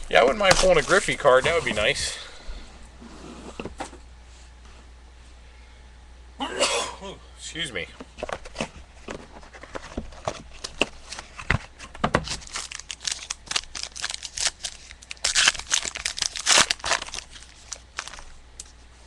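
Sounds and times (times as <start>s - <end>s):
plastic wrapping crinkling and tearing: 0.1s - 1.9s, 9.5s - 18.7s.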